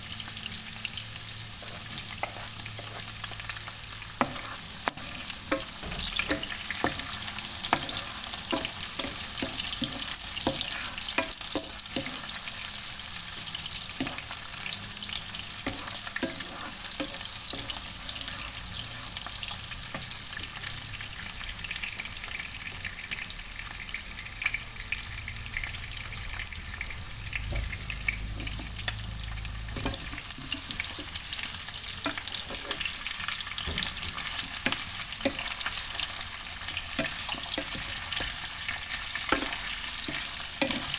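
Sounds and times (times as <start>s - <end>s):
food frying in hot oil: 0.0s - 40.9s.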